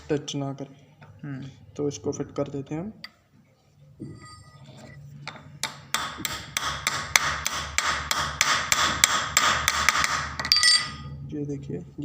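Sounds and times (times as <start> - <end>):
short metallic ring: 4.0 - 4.7, 10.5 - 11.2.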